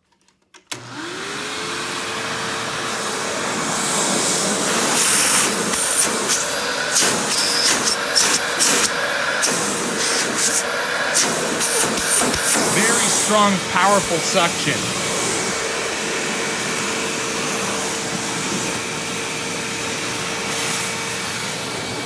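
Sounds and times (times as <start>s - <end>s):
vacuum cleaner switch click: 0.7s - 1.1s
vacuum cleaner motor whine: 0.7s - 22.0s
vacuum suction rush pulsing: 11.8s - 16.7s.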